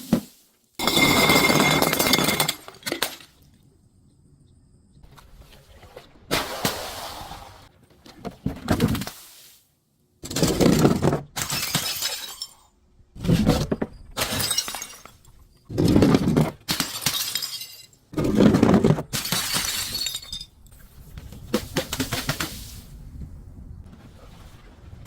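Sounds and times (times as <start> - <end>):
glass bottles smashing: 0.8 - 3.3, 11.4 - 12.7, 14.2 - 15.6, 16.6 - 18.0, 19.1 - 20.6.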